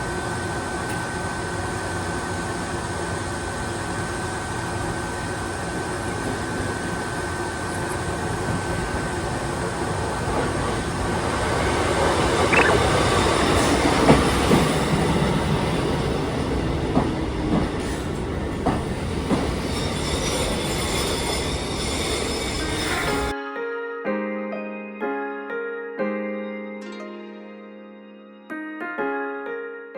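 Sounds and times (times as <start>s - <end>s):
electric train rumbling: 0.0s - 23.3s
wheel squeal: 19.6s - 23.3s.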